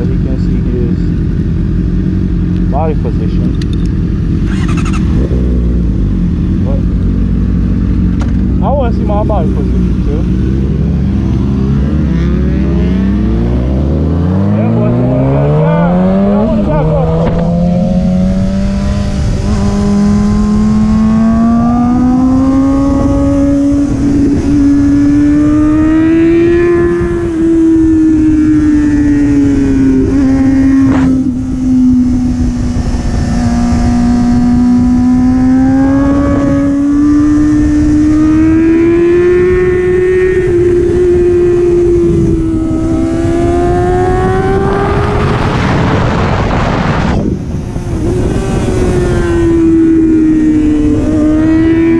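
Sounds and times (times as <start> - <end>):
motorcycle engine running at speed: 0.0 - 51.9
wind rumble on microphone: 2.3 - 51.9.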